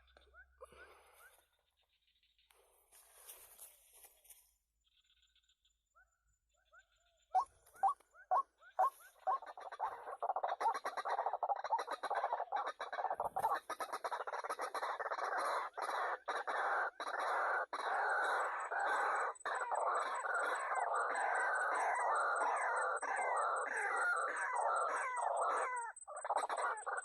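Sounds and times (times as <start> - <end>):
waterhen croaking calls: 7.3 - 27.0.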